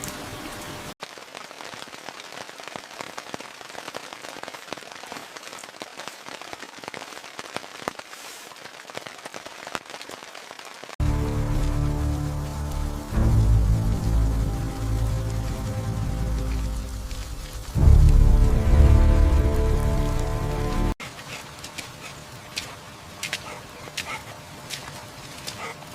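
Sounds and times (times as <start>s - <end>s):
rain pattering: 0.0s - 25.9s
music: 11.0s - 21.0s.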